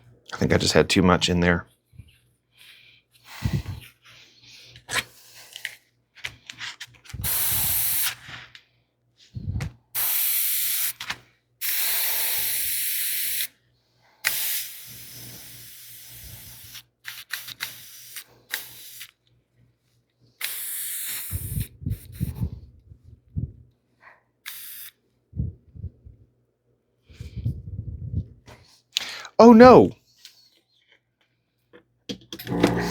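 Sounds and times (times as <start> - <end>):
airbrush spraying hiss: 7.2 - 8.2, 10.0 - 11.0, 11.6 - 13.5, 14.2 - 19.1, 20.4 - 22.4, 24.5 - 24.9.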